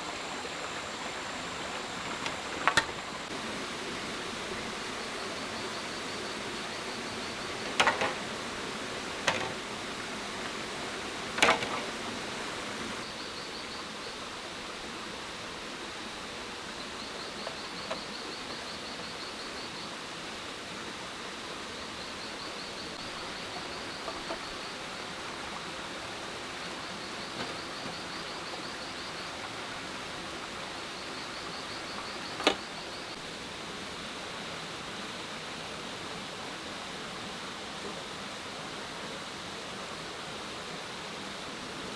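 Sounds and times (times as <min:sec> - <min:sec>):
steady hiss: 0:00.0 - 0:41.9
insect trilling: 0:00.7 - 0:13.0.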